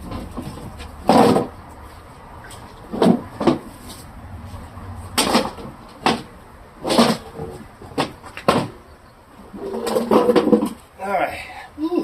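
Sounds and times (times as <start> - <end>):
plastic shelves knocking and clattering: 0.0 - 1.6, 2.9 - 3.7, 5.2 - 8.8.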